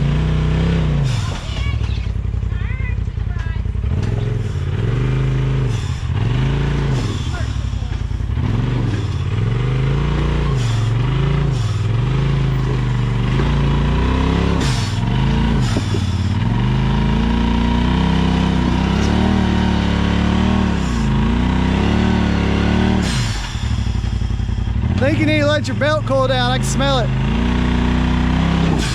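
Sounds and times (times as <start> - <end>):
utility vehicle engine revving: 0.0 - 28.9.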